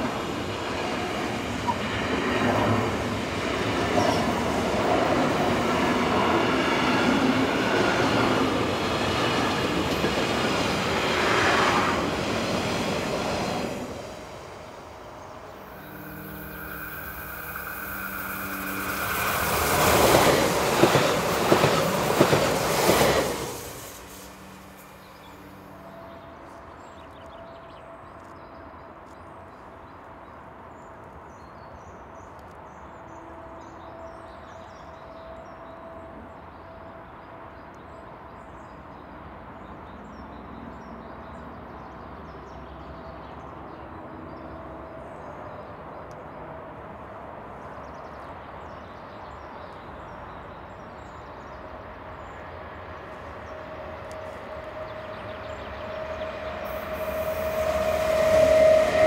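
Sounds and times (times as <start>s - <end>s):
electric train drive hum: 2.5s - 25.9s
freight train wheels clattering: 17.0s - 24.3s.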